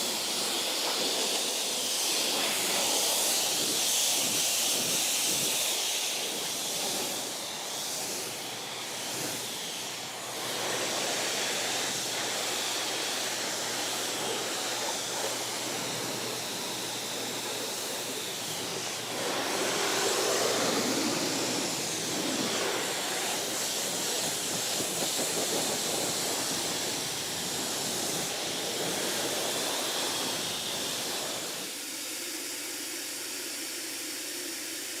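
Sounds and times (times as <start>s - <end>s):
pressure washer spraying car: 0.0s - 31.8s.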